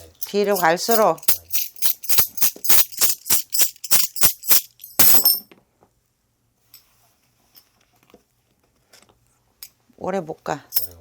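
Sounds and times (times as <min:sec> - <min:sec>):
metal jingles shaken: 0:00.0 - 0:05.4.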